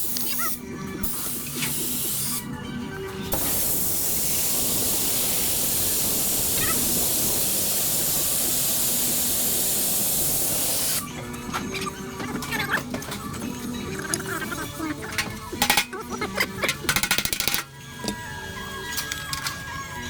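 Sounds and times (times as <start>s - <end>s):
compressed air hissing: 0.0s - 2.5s, 3.3s - 11.1s.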